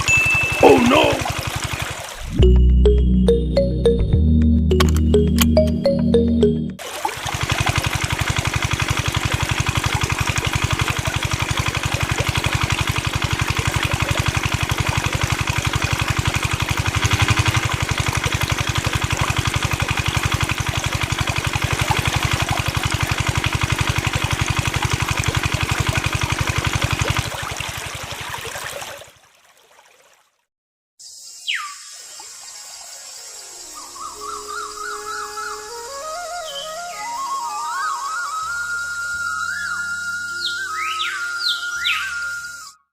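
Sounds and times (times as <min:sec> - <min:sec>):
small water pump motor pulsing: 0:00.0 - 0:02.4, 0:06.8 - 0:29.3
water splashing and trickling: 0:00.0 - 0:02.7, 0:06.8 - 0:30.5.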